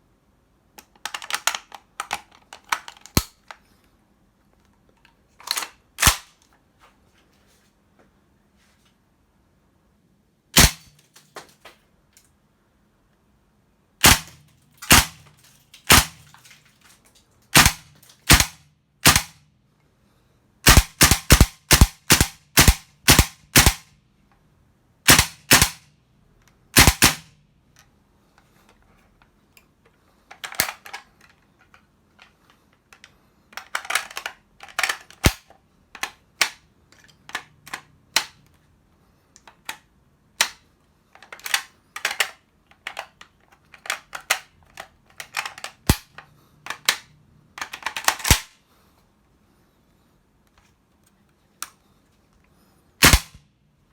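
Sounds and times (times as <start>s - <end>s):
rifle being handled clacks: 0.8s - 3.6s, 30.3s - 38.5s, 41.2s - 48.5s
airsoft rifle cracks: 5.5s - 6.4s, 10.6s - 11.3s, 14.0s - 16.5s, 17.5s - 19.4s, 20.6s - 23.9s, 25.1s - 25.8s, 26.8s - 27.3s, 46.7s - 48.6s, 53.0s - 53.4s.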